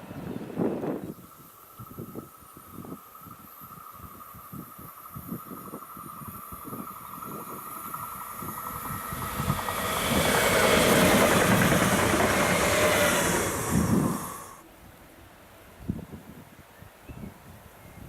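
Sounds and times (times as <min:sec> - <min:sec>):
train passing: 0:04.9 - 0:14.6.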